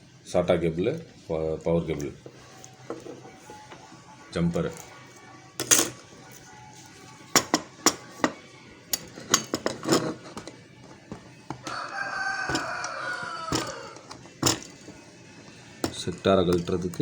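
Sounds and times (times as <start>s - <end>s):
rooster crowing: 11.6s - 14.2s.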